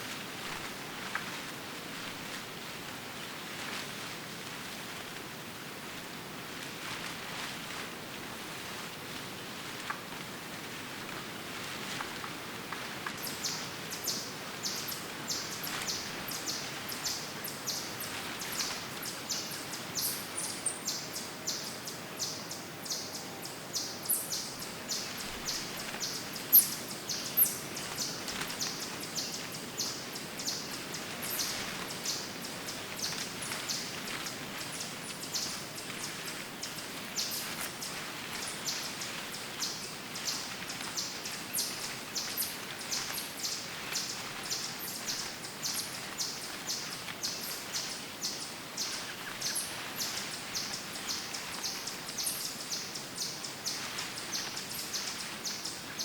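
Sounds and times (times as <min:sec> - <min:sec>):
steady background hiss: 0:00.0 - 0:56.0.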